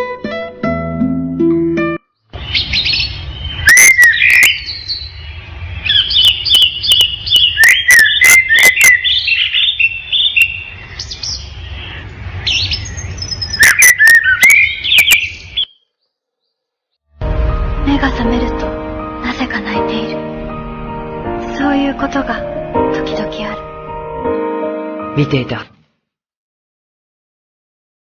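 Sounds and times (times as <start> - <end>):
bird singing: 2.1 - 16.7.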